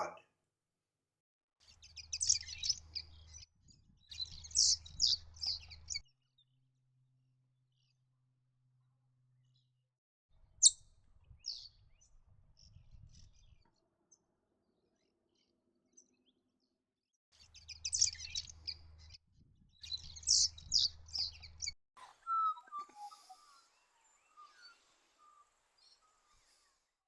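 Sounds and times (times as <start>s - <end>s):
high-pitched bird twittering: 4.1s - 5.7s, 19.8s - 21.4s
lower bird call with falling notes: 22.0s - 25.4s.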